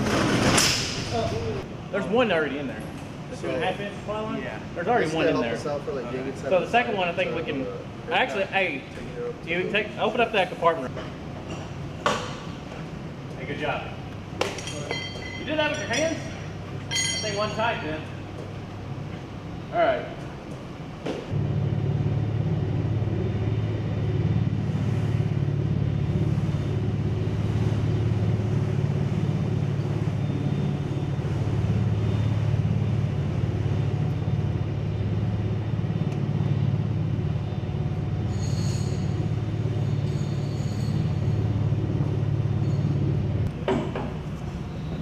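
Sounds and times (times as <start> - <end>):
fire truck engine rumbling: 0.0 - 45.0.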